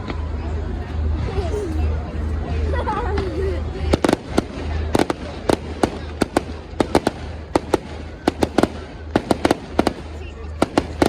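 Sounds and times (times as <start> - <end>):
fireworks bangs and cracks: 3.9 - 11.0.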